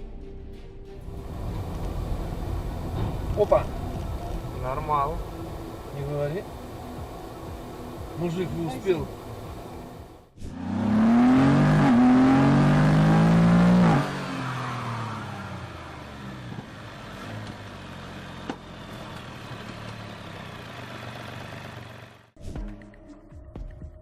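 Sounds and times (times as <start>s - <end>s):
car engine revving: 1.1s - 22.2s.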